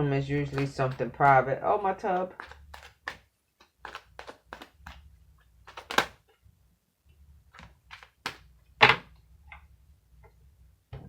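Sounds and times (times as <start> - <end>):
cards tapping and snapping on table: 0.4 - 1.4, 2.2 - 5.0, 5.7 - 6.2, 7.6 - 9.1.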